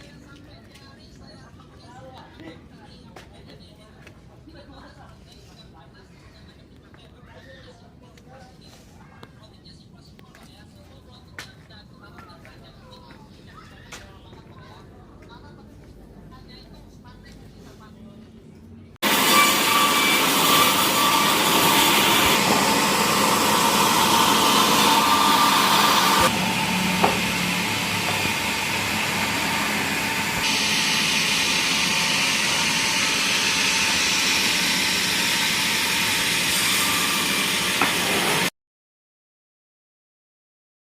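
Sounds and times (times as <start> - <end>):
sawmill saw cutting wood: 19.0 - 38.5.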